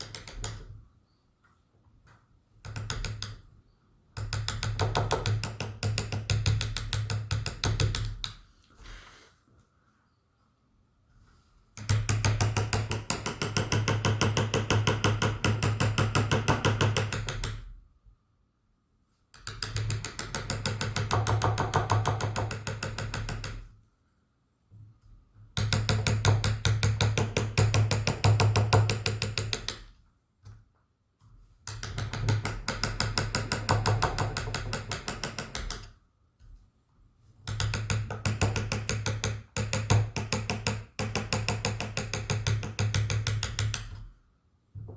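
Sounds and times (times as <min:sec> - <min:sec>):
mallet tapping chisel into wood: 0:00.0 - 0:00.8, 0:02.6 - 0:03.5, 0:04.2 - 0:08.4, 0:11.8 - 0:17.7, 0:19.4 - 0:23.7, 0:25.6 - 0:30.0, 0:31.6 - 0:36.0, 0:37.4 - 0:44.0.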